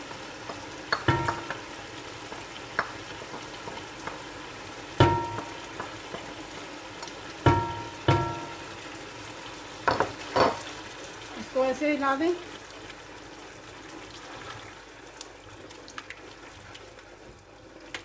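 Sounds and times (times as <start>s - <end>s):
meat sizzling in a pot: 0.0s - 18.0s.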